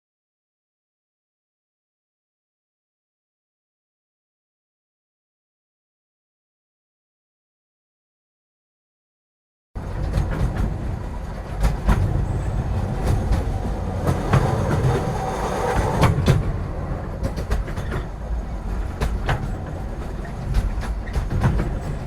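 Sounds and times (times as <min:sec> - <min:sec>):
train rumbling on rails: 0:09.8 - 0:22.0
wheels clacking over rail joints: 0:09.8 - 0:22.0.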